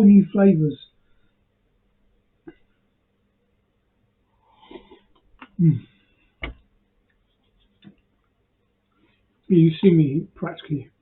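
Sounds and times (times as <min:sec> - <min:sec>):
man humming: 0:05.5 - 0:05.9.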